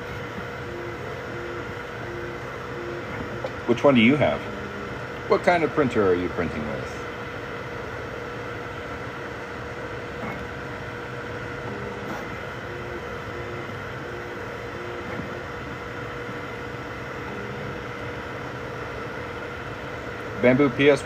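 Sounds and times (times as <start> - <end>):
stepper motor pitched notes: 0.0 - 6.9, 11.6 - 19.0
cooling fan hum: 0.0 - 21.0.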